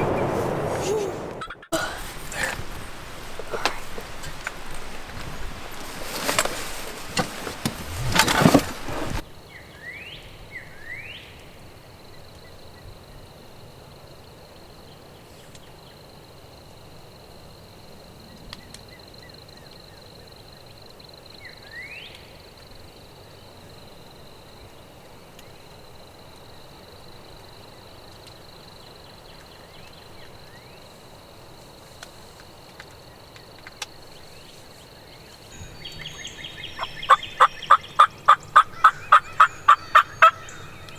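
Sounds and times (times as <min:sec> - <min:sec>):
short rising bird chirps: 0:35.6 - 0:40.9.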